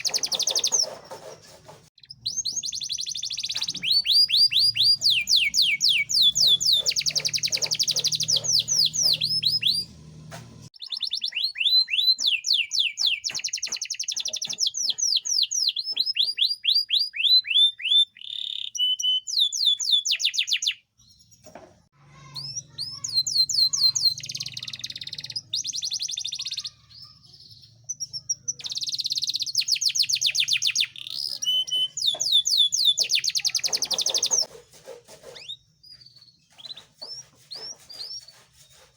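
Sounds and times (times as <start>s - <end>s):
canary singing trills: 0.0s - 1.3s, 2.0s - 10.1s, 10.7s - 34.5s, 35.3s - 38.9s.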